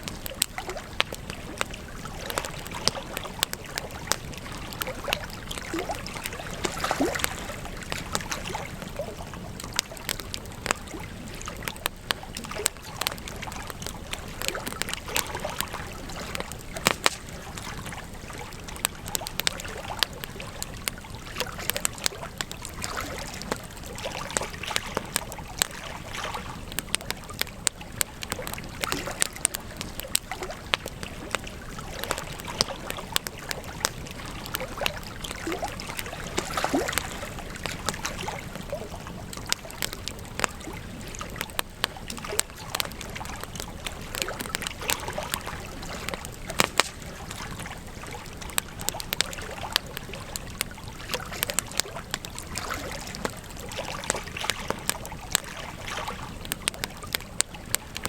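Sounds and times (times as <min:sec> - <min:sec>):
campfire crackling: 0:00.0 - 0:58.0.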